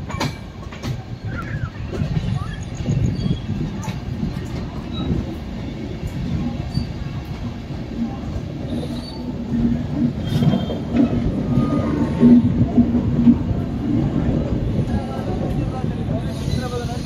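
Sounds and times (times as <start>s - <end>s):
train wheels rumbling on rails: 0.0s - 17.0s
wheels squealing: 0.8s - 7.4s, 8.0s - 13.0s.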